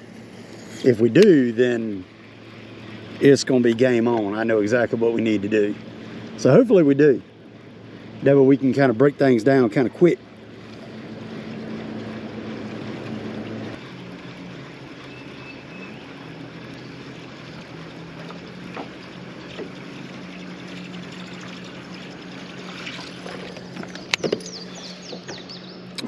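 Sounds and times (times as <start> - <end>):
boat motor humming: 0.0 - 26.0
water lapping: 0.0 - 26.0.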